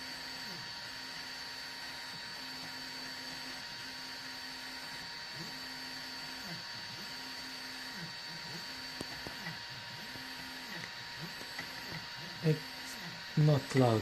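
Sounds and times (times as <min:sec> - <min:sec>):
stepper motors humming: 0:03.1 - 0:14.0
steady high whine: 0:08.4 - 0:14.0.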